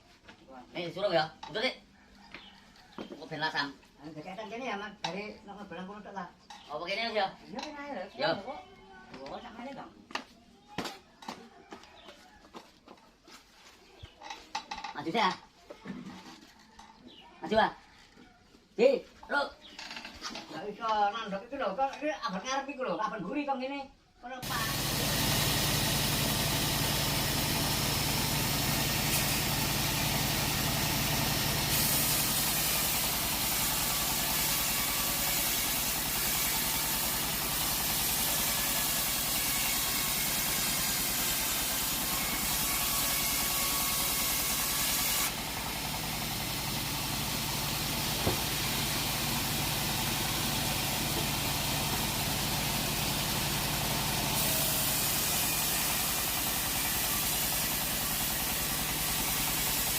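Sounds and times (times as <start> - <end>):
engine running: 24.4 - 59.9.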